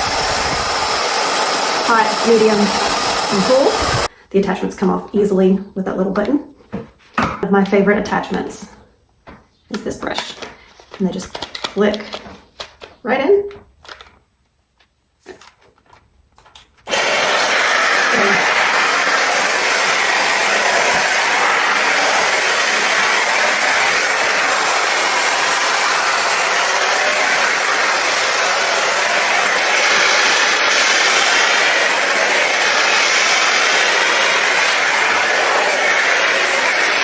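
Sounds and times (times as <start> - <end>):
hair styler blowing air: 0.0 - 4.1, 16.9 - 37.0.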